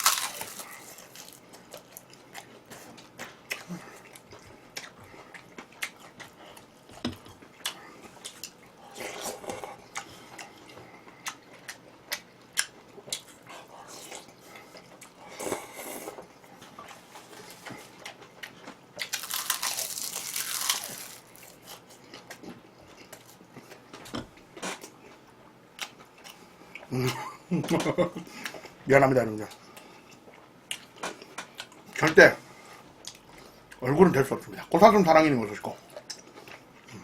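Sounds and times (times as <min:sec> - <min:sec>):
person chewing and biting: 0:00.0 - 0:23.8.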